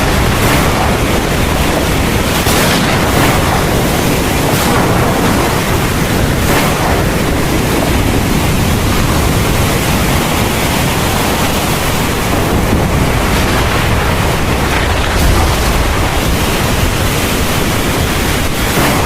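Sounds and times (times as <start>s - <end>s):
heavy rain pouring: 0.0s - 19.0s
deep low rumble: 12.3s - 18.5s.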